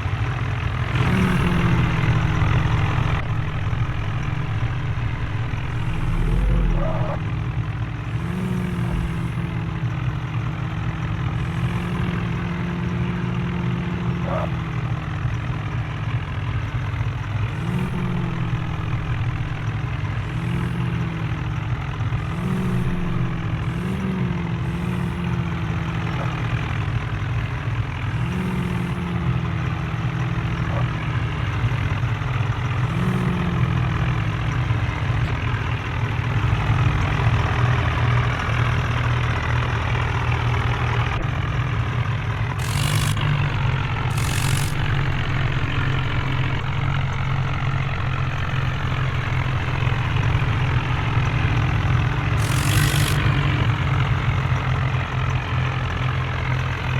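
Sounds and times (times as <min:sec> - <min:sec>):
diesel engine running: 0:00.0 - 0:56.9
short hissing bursts: 0:42.6 - 0:45.4, 0:52.4 - 0:53.5.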